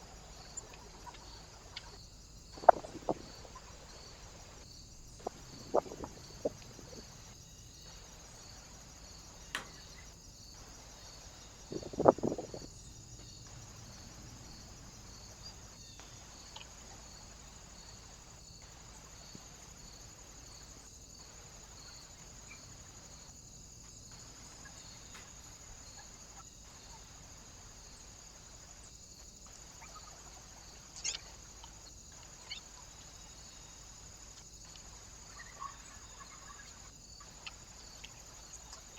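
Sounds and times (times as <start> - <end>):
high electronic hiss: 2.4 - 23.3.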